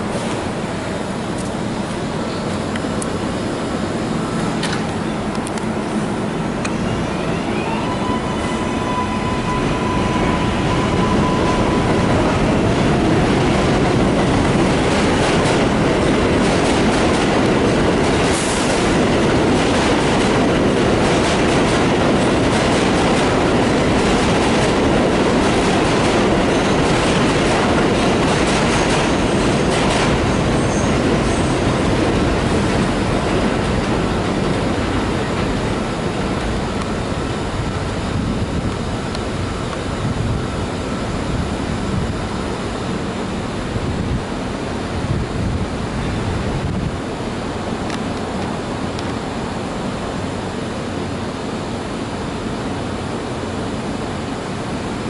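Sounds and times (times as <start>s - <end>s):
train wheels rushing on rail: 0.0s - 55.0s
high squeal: 6.7s - 12.2s, 30.4s - 31.6s
train wheels clicking: 13.1s - 36.9s.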